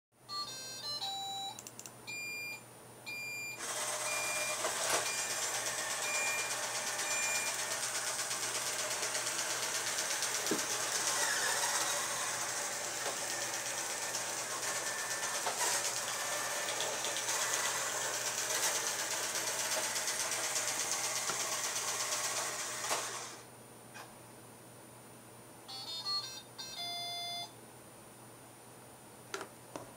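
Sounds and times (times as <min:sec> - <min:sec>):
robot vacuum motor and brushes: 0:03.6 - 0:23.4.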